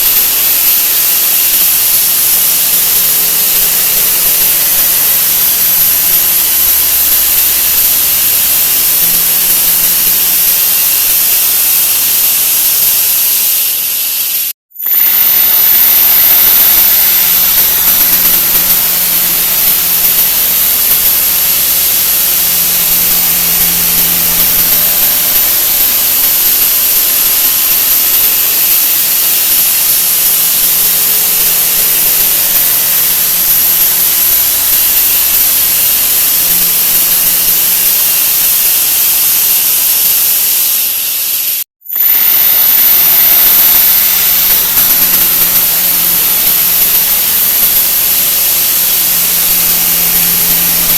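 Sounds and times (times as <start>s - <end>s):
bright high whine: 0.0s - 50.9s
loud hiss-like noise: 0.0s - 50.9s.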